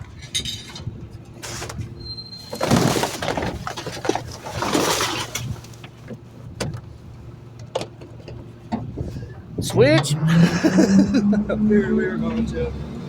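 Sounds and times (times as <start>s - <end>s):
garbage truck running: 0.0s - 13.0s
trash crashing into garbage truck: 2.4s - 5.6s.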